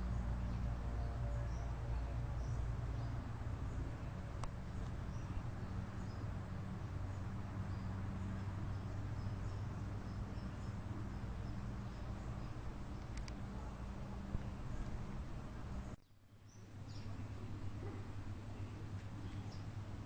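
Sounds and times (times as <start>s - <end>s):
steady low hum: 0.0s - 20.0s
sharp clicks: 13.0s - 13.4s.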